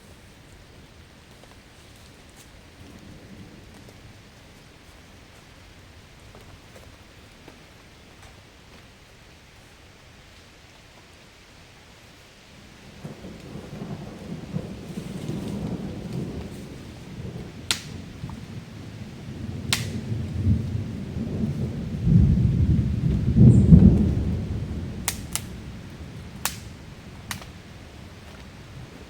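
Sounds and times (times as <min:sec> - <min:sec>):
steady rain: 0:00.0 - 0:29.0
low rolling thunder: 0:02.5 - 0:07.2, 0:12.5 - 0:29.0
sharp single clicks: 0:19.7 - 0:20.0, 0:25.1 - 0:25.5.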